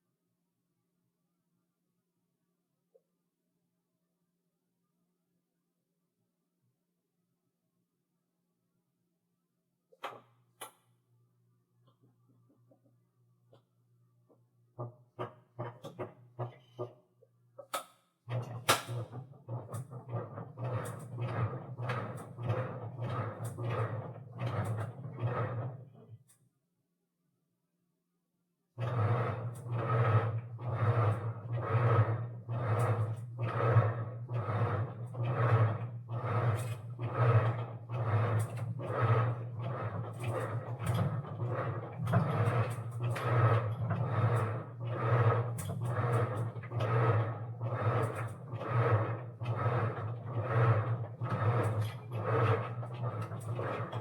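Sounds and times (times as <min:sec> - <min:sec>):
washing machine low hum: 0:18.3 - 0:26.0, 0:28.8 - 0:54.0.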